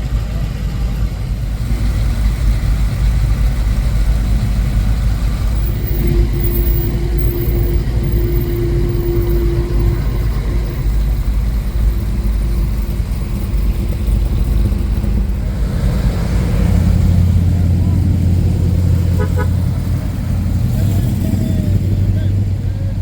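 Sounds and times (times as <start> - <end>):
car engines rumbling: 0.0 - 23.0
steady tone: 1.6 - 20.8.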